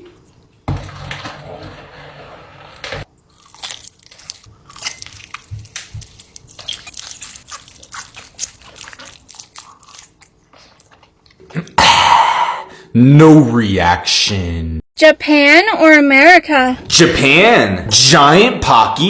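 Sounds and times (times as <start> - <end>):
chewing crunchy candy: 3.2 - 11.8.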